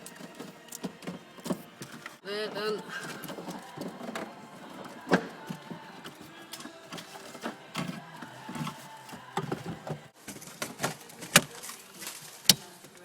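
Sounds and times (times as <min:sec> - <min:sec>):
hands handling parts and tools: 0:00.0 - 0:02.2, 0:02.8 - 0:13.0.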